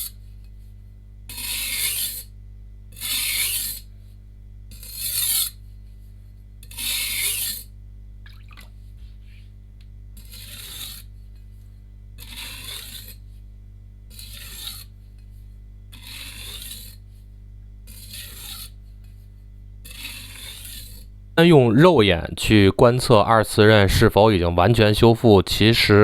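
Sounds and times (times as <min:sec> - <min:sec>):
blade scraping on whetstone: 0:01.3 - 0:02.3, 0:02.9 - 0:03.9, 0:04.7 - 0:05.6, 0:06.6 - 0:07.7, 0:10.2 - 0:11.1, 0:12.2 - 0:13.3, 0:14.1 - 0:15.0, 0:15.9 - 0:17.1, 0:17.8 - 0:19.2, 0:19.8 - 0:21.1.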